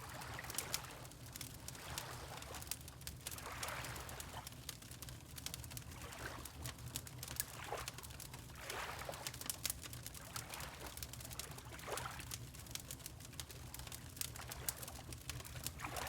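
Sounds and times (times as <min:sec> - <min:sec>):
wood fire crackling and popping: 0:04.6 - 0:08.4, 0:09.3 - 0:10.2, 0:12.2 - 0:16.0
water lapping: 0:08.6 - 0:09.2.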